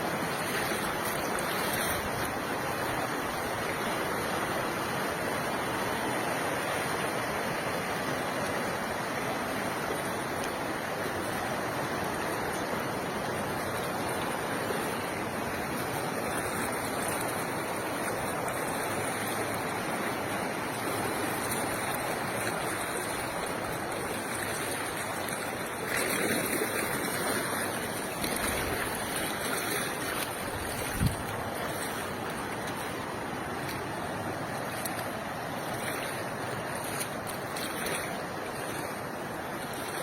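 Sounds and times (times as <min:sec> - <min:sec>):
rushing floodwater: 0:00.0 - 0:40.0.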